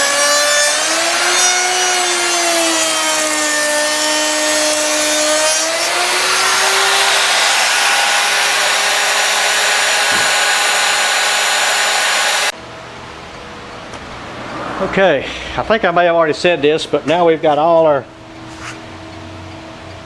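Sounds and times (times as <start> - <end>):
router cutting wood: 0.0 - 12.6.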